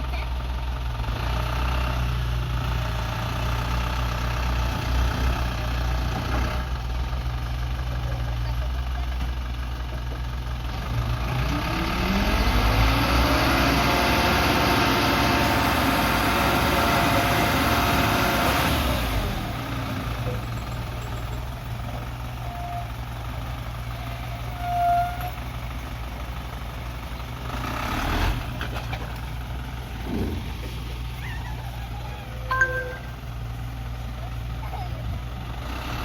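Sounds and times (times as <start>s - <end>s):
diesel truck engine revving: 0.0s - 36.0s
short beep: 32.5s - 33.1s.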